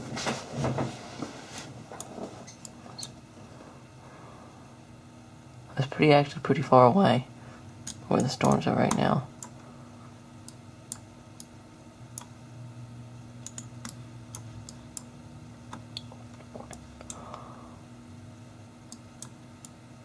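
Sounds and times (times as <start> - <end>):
computer clicking: 7.8 - 9.6, 10.4 - 11.5, 13.4 - 15.1.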